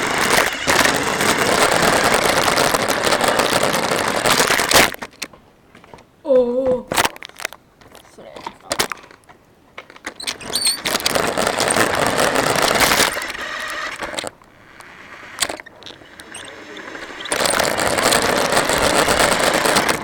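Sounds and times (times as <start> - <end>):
toy car motor rattling: 0.0 - 5.1, 10.2 - 20.0.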